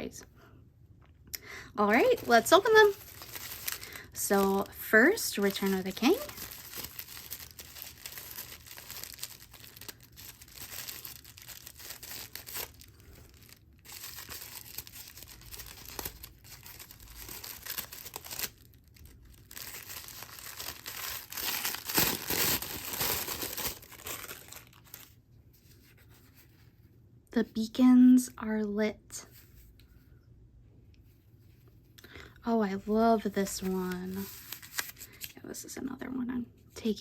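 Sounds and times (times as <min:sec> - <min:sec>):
packaging crinkling and tearing: 0:01.8 - 0:25.2, 0:33.5 - 0:35.4.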